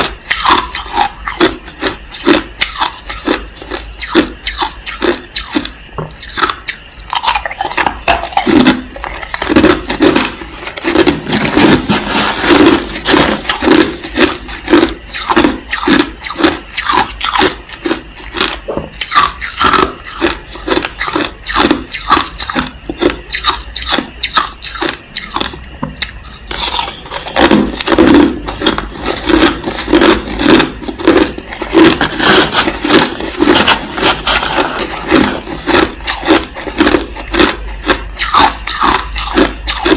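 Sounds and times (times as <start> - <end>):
person chewing crushed ice: 0.0 - 39.9.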